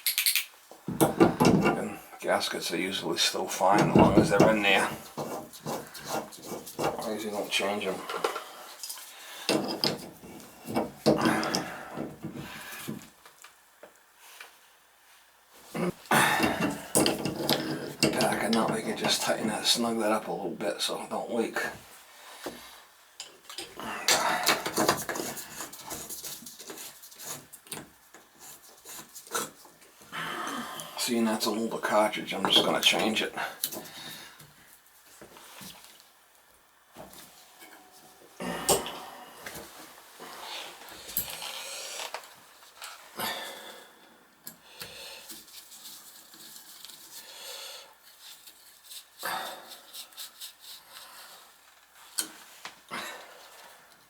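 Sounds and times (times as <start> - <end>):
hand tools knocking and scraping: 0.9 - 2.0, 3.6 - 8.5, 9.4 - 13.1, 16.2 - 19.6, 24.1 - 29.6, 32.4 - 33.0
metal tools clinking and scraping: 16.4 - 19.3.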